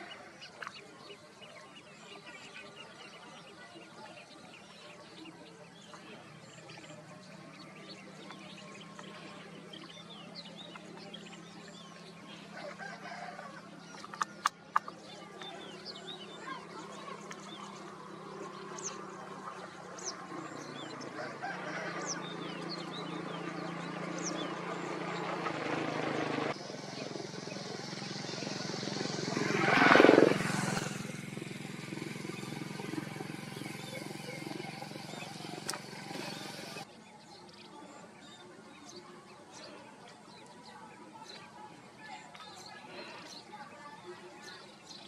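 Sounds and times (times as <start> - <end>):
birds chirping: 0.0 - 45.0
outdoor hubbub: 0.0 - 45.0
steady low drone: 22.9 - 36.9.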